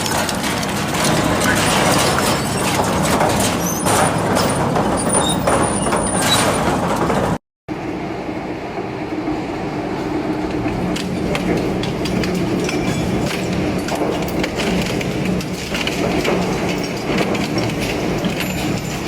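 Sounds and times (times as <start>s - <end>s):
metal shredder grinding metal: 0.0s - 7.4s, 10.2s - 19.0s.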